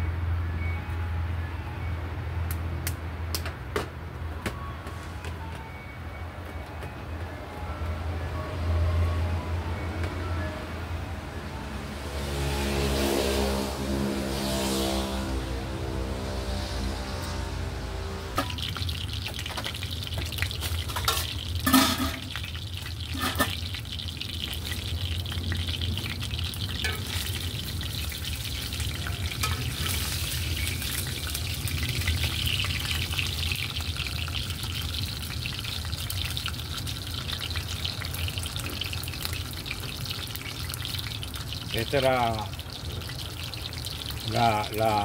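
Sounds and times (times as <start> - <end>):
food sizzling in a skillet: 18.4 - 45.0.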